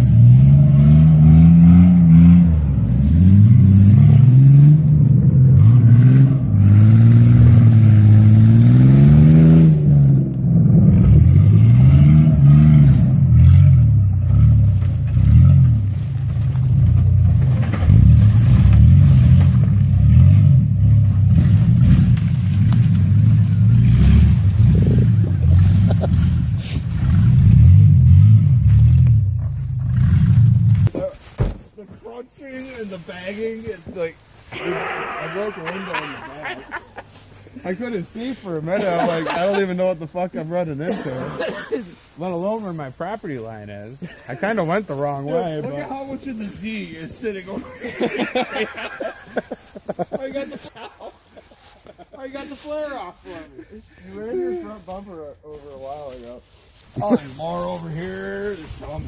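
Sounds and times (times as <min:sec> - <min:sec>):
pickup engine revving: 0:00.0 - 0:30.9.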